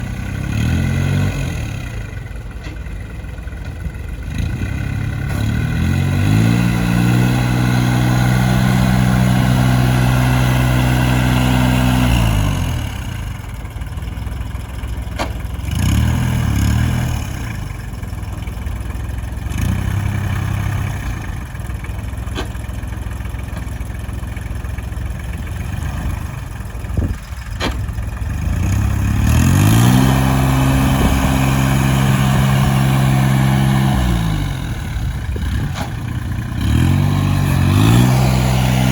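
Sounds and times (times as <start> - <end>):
tractor engine idling and revving: 0.0 - 38.9.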